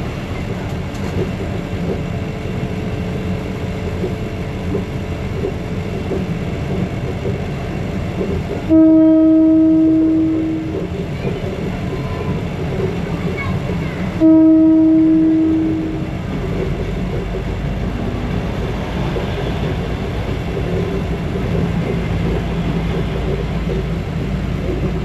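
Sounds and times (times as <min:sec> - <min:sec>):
train wheels rumbling on rails: 0:00.0 - 0:25.0
train horn blast: 0:08.6 - 0:10.8, 0:14.2 - 0:16.1.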